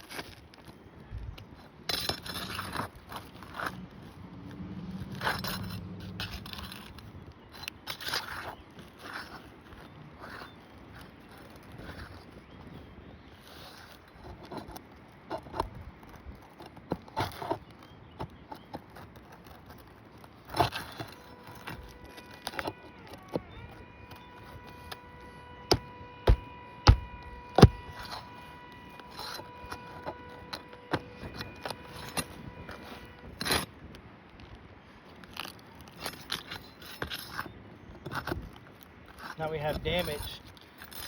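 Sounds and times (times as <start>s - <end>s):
shingles scraping and crackling: 0.0s - 41.0s
sharp knocks: 25.7s - 28.1s.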